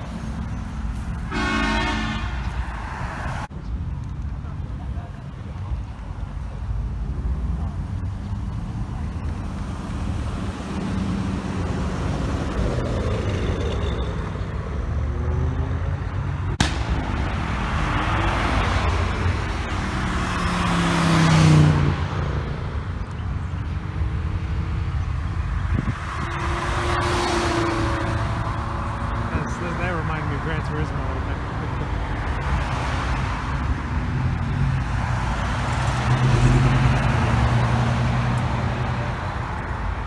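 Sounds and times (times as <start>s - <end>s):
cars idling and driving: 0.0s - 40.0s
car passing close: 8.9s - 23.1s, 24.3s - 40.0s.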